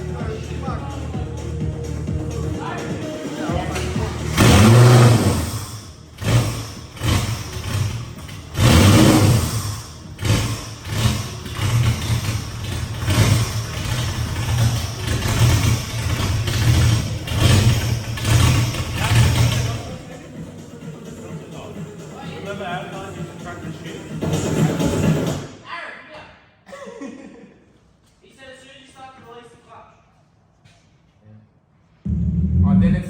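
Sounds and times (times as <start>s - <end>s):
car engine revving over idle: 3.6s - 20.2s, 32.1s - 33.0s.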